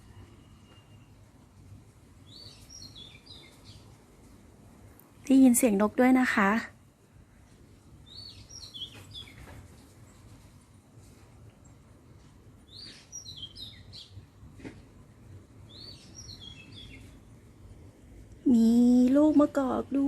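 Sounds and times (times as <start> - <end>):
songbird chirping: 2.2 - 4.2, 7.4 - 10.6, 11.2 - 20.0.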